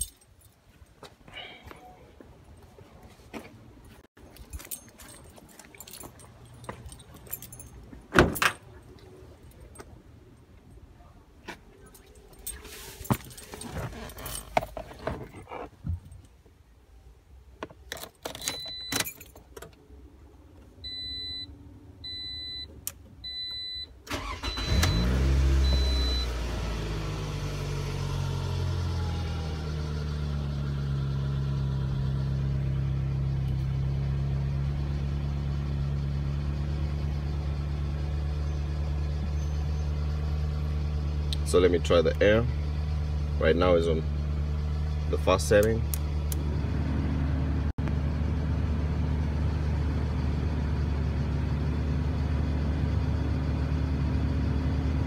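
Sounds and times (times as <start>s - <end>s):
car engine cranking and starting: 12.4s - 15.7s, 24.0s - 55.0s
car engine idling: 24.1s - 55.0s.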